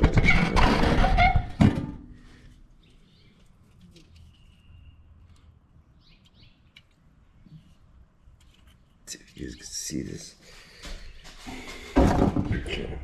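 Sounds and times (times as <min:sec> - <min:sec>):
faint bird chirps: 0:04.0 - 0:06.8.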